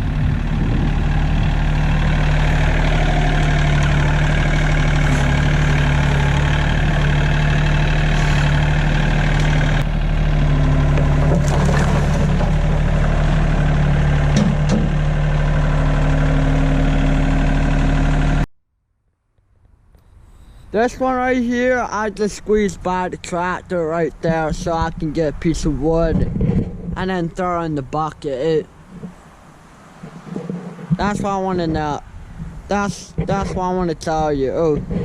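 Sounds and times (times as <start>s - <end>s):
tractor engine running: 0.0s - 18.5s, 20.7s - 35.0s.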